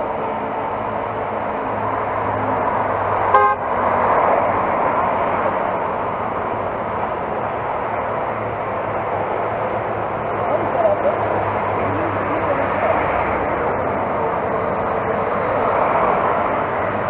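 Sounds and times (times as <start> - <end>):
wind: 0.0 - 17.0
motorcycle engine: 1.2 - 15.1
horn toot: 3.3 - 3.8.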